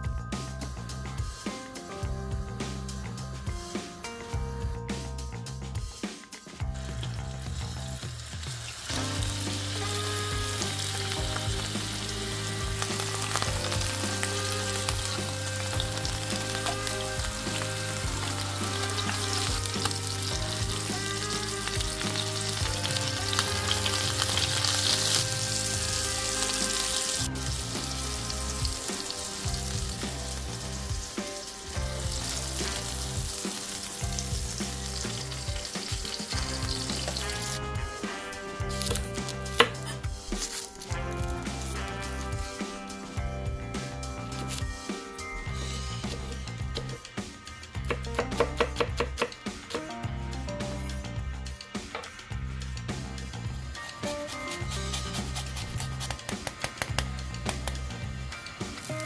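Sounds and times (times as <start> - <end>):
scallops sizzling in frying pan: 6.8 - 37.7.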